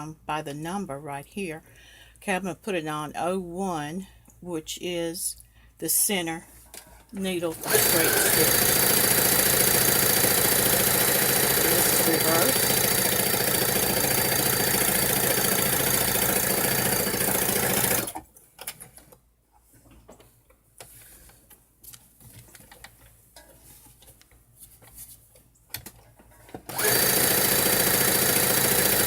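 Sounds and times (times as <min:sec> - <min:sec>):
sewing machine stitching: 0:07.4 - 0:18.2, 0:26.6 - 0:29.0.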